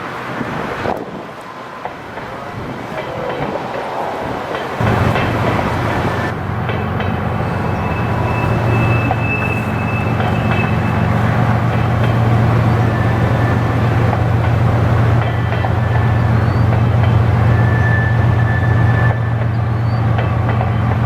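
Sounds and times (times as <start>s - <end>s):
diesel locomotive engines droning: 0.0s - 21.0s
train wheels rattling on rails: 0.3s - 21.0s.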